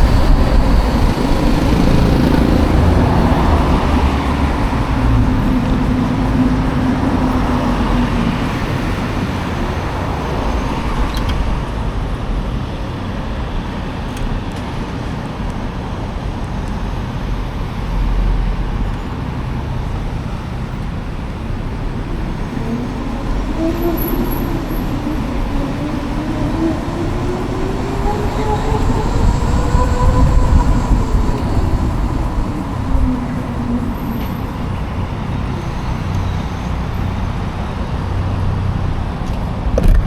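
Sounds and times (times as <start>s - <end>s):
low rumble: 0.0s - 12.6s
wind and road noise: 0.0s - 40.0s.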